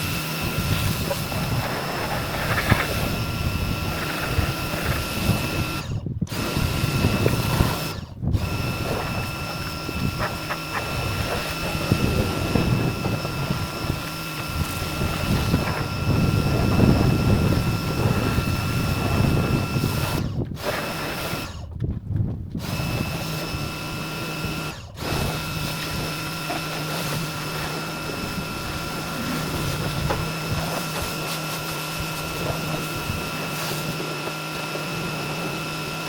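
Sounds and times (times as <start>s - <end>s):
pressure washer running: 0.0s - 21.7s, 22.6s - 36.0s
water spray hissing: 25.1s - 35.9s.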